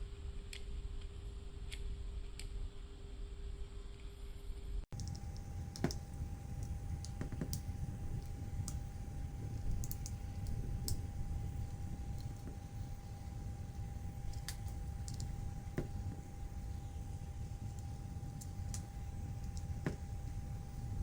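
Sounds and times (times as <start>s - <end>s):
low hum: 4.9s - 21.0s
small parts clicking and tapping: 5.0s - 21.0s.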